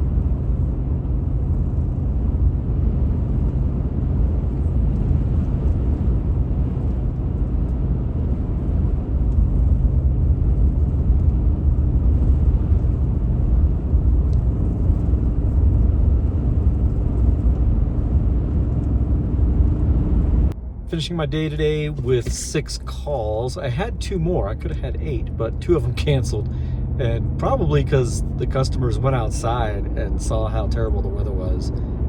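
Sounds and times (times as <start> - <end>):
road noise: 0.0 - 32.0
vehicle engine rumble: 0.0 - 32.0.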